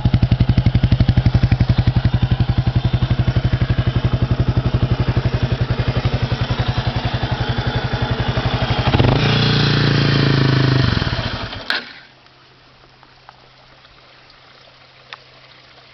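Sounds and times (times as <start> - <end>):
motorcycle engine idling: 0.0 - 11.7.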